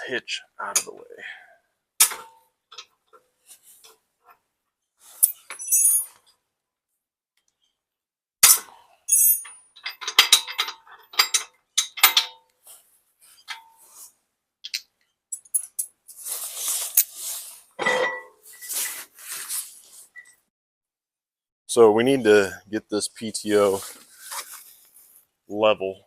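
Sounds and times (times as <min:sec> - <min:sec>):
metal hitch parts clanking: 0:09.1 - 0:12.4.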